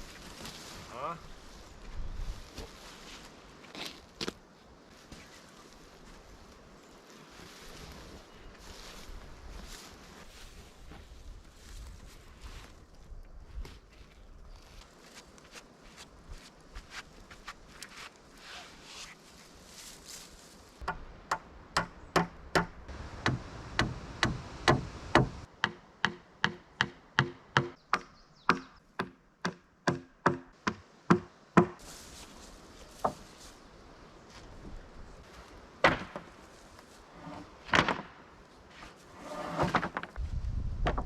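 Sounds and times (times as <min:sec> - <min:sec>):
hand tool striking wood: 0:20.8 - 0:31.8.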